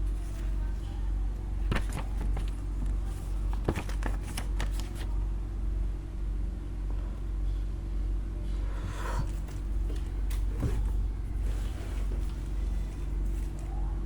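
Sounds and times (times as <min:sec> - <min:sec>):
paper rustling and clicking: 0:00.0 - 0:00.9, 0:01.6 - 0:05.2.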